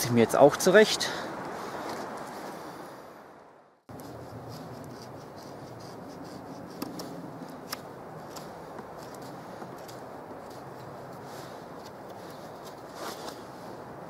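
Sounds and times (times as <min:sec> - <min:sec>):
knife whittling wood: 0:03.9 - 0:09.2.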